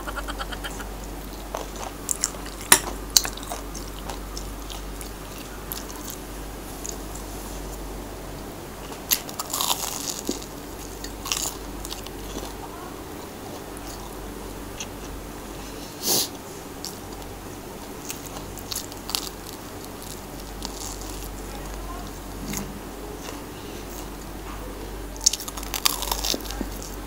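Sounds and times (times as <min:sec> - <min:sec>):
person chewing crunchy food: 0:00.0 - 0:06.2, 0:09.0 - 0:12.6, 0:17.8 - 0:21.4, 0:25.2 - 0:27.0.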